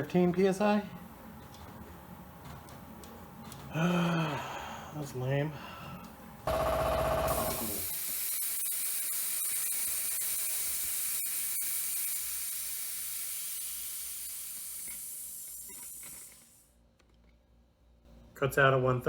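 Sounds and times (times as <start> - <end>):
compressed air hissing from tank: 7.5 - 16.6.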